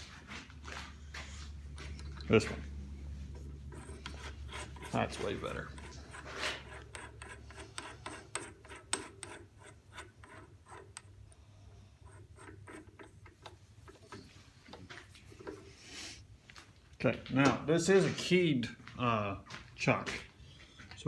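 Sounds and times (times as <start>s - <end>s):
drill chuck clicking and rubbing: 3.7s - 11.4s, 12.0s - 14.3s.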